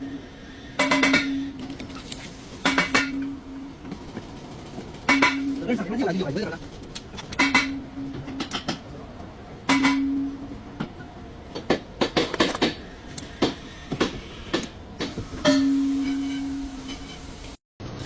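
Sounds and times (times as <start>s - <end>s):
ringing metal strikes: 0.8s - 1.6s.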